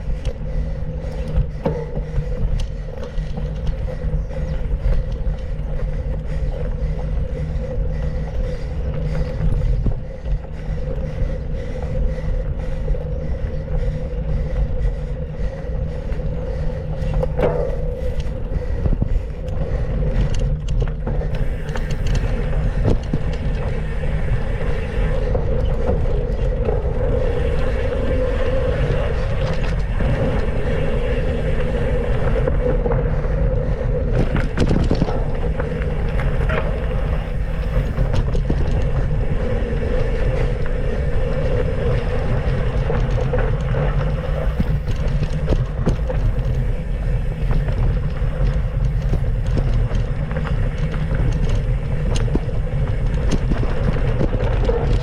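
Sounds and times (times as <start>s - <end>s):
tyres rolling on dirt: 0.0s - 55.0s
wind buffeting microphone: 0.0s - 55.0s
bike knocks and rattles: 0.2s - 11.9s, 13.8s - 23.9s, 34.0s - 55.0s.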